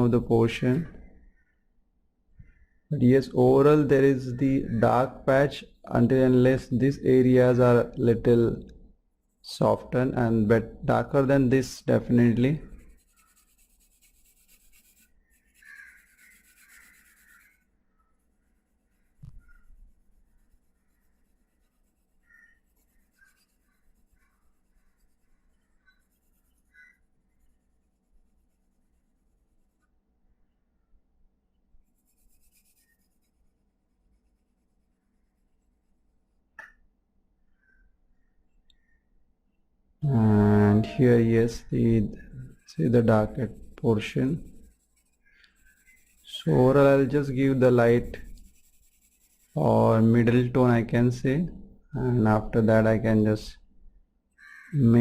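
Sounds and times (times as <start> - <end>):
pencil scratching on paper: 11.2 - 29.8, 31.8 - 36.0, 40.6 - 51.2.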